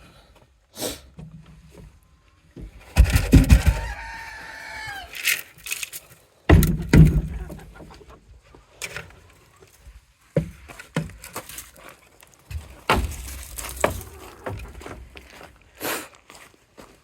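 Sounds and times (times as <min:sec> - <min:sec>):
knocks and thumps: 0:02.6 - 0:04.1, 0:06.5 - 0:08.0, 0:12.5 - 0:15.2.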